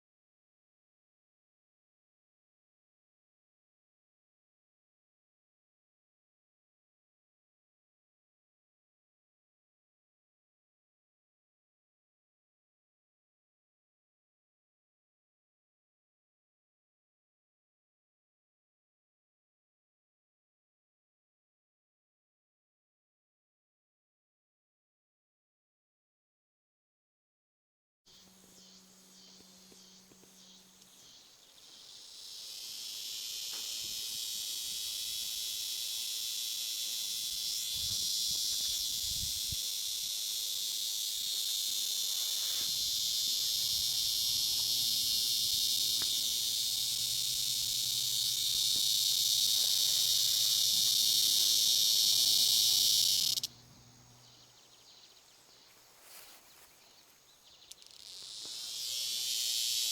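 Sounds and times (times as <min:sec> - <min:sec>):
cicada buzzing: 0:28.1 - 0:56.3, 0:57.3 - 0:59.9.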